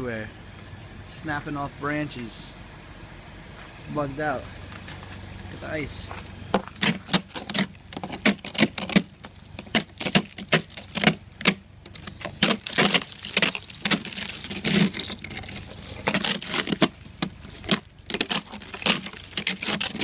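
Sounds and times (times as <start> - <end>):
ice crunching and cracking: 4.8 - 20.0.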